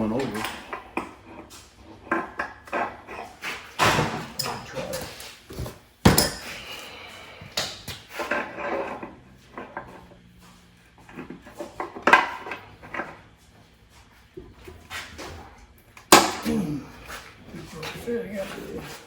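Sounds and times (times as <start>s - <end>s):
metal tools clanking: 3.8s - 6.7s.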